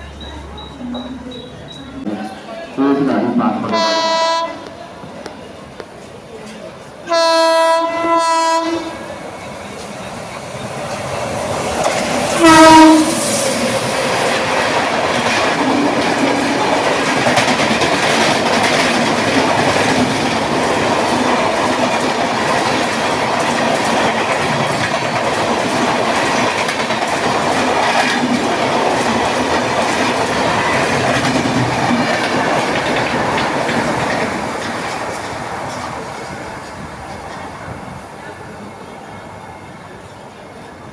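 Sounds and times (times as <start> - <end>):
express train passing: 0.0 - 40.9
train horn blasts: 2.8 - 4.7, 7.0 - 9.0, 12.4 - 13.3
train wheels clattering over rails: 7.3 - 38.6.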